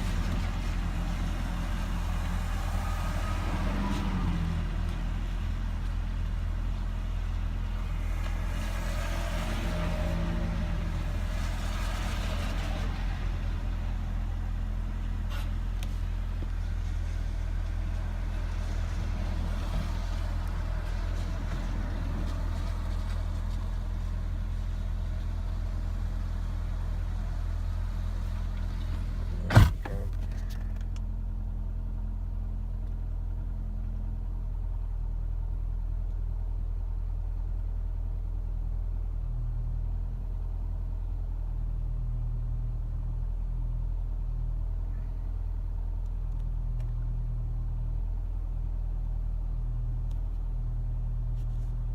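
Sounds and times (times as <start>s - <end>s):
car engine idling: 10.9s - 51.9s
sharp thump: 29.4s - 30.4s.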